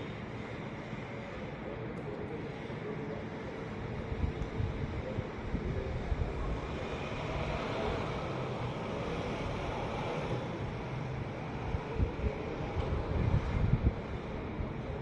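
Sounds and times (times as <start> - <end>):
wind buffeting microphone: 4.1 - 8.1, 11.6 - 15.0.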